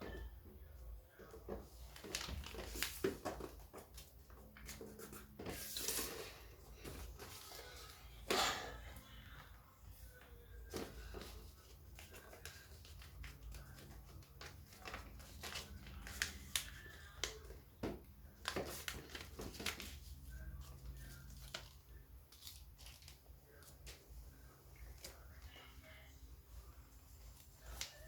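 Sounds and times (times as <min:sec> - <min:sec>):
paper folding and creasing: 0:10.8 - 0:17.5, 0:18.4 - 0:24.0.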